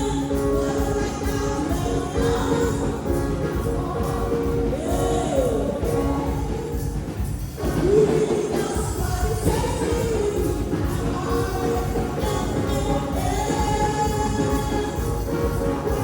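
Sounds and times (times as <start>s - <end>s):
choir singing gospel with band: 0.0s - 16.0s.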